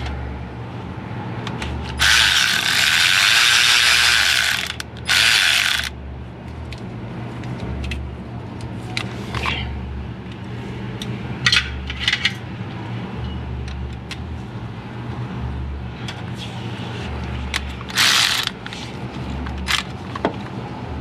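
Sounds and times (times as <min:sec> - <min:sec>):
steady low hum: 0:00.0 - 0:21.0
hand ratchet clicking: 0:02.0 - 0:05.9, 0:17.8 - 0:18.8.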